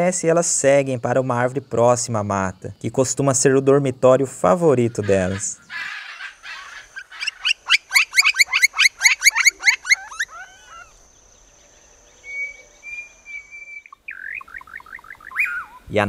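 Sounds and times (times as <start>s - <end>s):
faint bird calls: 4.6s - 16.0s
bird calling sharp repeated notes: 4.9s - 11.0s, 12.2s - 15.9s.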